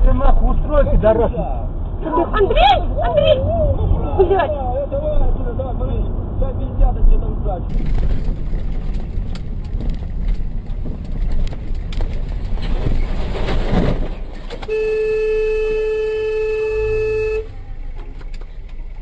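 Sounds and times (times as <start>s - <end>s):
road and engine rumble: 0.0s - 19.0s
vehicle horn held: 14.7s - 17.7s.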